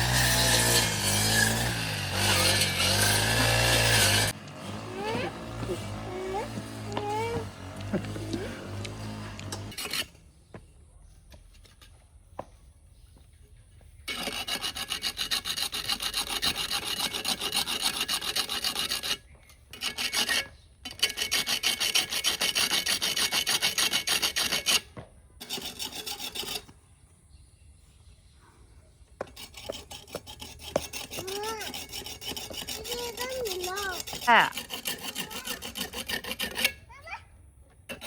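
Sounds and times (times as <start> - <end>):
rhythmic scraping strokes: 0.0 - 10.2, 29.2 - 36.8.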